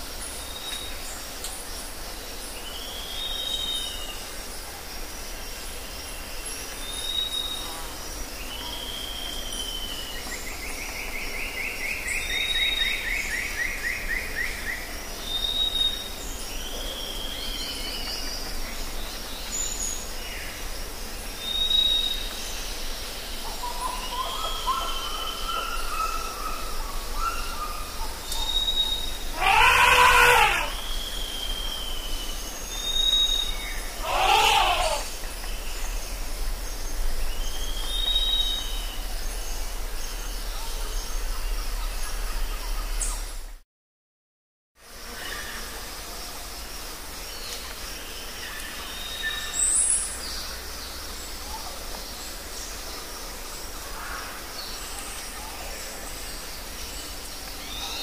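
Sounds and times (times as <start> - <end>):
loud harsh bird call: 29.2 - 31.3, 33.8 - 35.2
long rasping bird trill: 29.3 - 30.9, 34.0 - 35.1
buzzy bird chirps: 29.4 - 30.9, 34.0 - 35.1.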